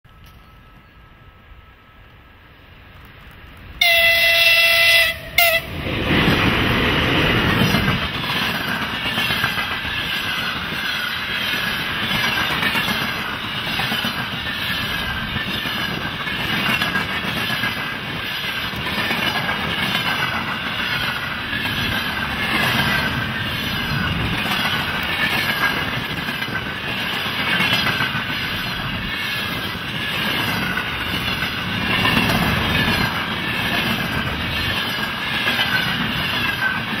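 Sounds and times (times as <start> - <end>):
locomotive horn blasts: 3.8 - 5.8
train wheels clattering over rail joints: 5.8 - 37.0.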